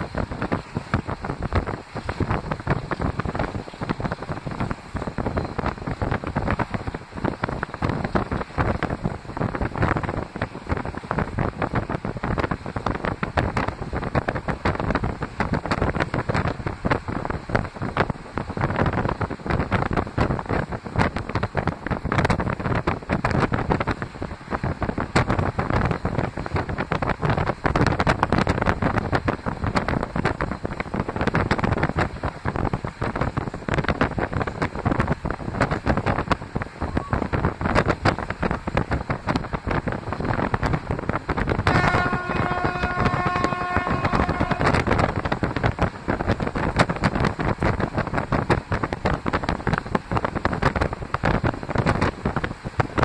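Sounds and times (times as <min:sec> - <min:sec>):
train running noise: 0:00.0 - 0:53.0
wind buffeting microphone: 0:00.0 - 0:53.0
train horn: 0:41.6 - 0:45.0.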